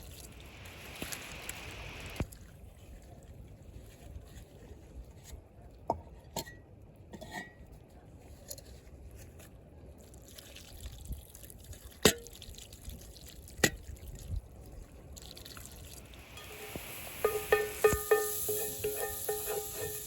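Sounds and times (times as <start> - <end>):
faint steady background noise: 0.0 - 20.0
cooking utensils clinking: 16.2 - 20.0.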